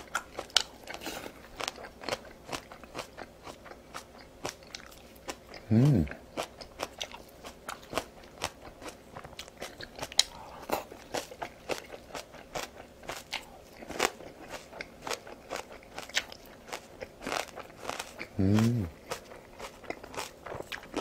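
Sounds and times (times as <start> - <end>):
crisp chewing crunches: 0.0 - 21.0.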